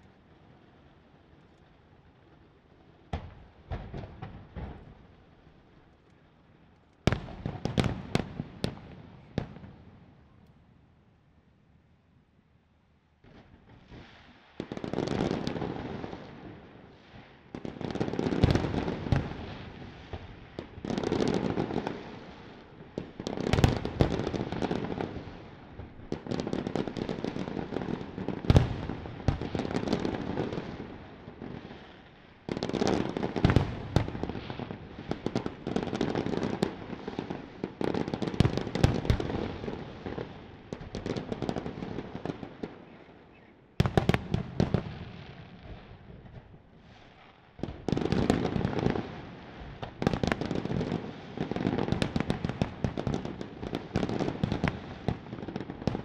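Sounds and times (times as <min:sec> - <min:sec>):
firework crackling and popping: 0:13.2 - 0:42.9, 0:43.8 - 0:56.0.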